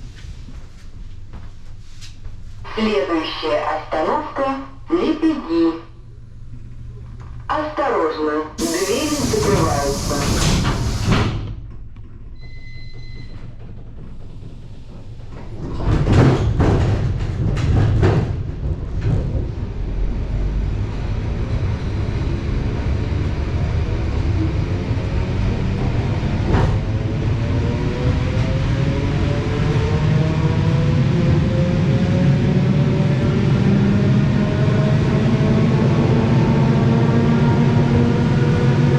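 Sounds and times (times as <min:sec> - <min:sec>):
air hiss: 0:08.6 - 0:11.3
train motor whine: 0:08.6 - 0:11.6
train wheels and couplings clunking: 0:08.6 - 0:20.3, 0:25.7 - 0:27.5
wheels rumbling on rail: 0:08.6 - 0:38.9.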